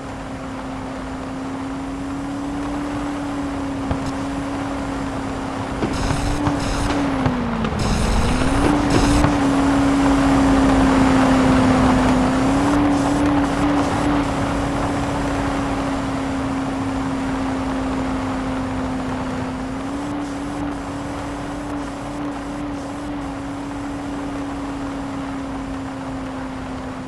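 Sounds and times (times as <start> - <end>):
constant noisy rush: 0.0 - 27.0
car engine running: 0.1 - 27.0.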